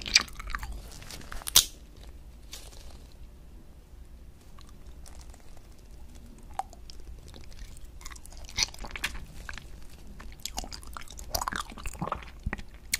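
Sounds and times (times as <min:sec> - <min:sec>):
person chewing crunchy candy: 0:00.0 - 0:01.7, 0:04.5 - 0:12.9.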